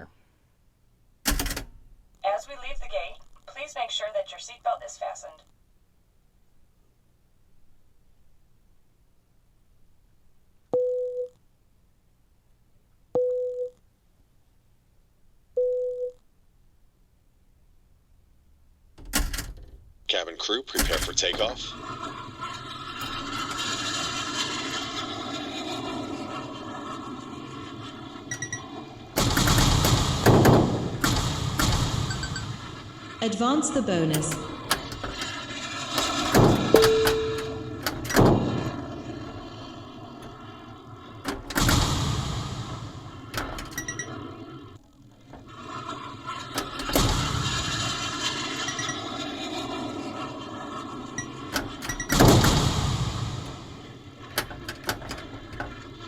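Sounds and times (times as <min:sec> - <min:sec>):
pinball mechanical clicks: 0:01.3 - 0:01.9, 0:19.0 - 0:19.9, 0:20.8 - 0:26.5, 0:28.0 - 0:40.6, 0:46.6 - 0:50.0, 0:51.0 - 0:56.0
faint beeps: 0:10.8 - 0:11.4, 0:13.2 - 0:13.8, 0:15.6 - 0:16.2, 0:36.8 - 0:37.7
jet engine rush: 0:20.1 - 0:44.2, 0:45.3 - 0:56.0
short high beeps: 0:36.8 - 0:37.7.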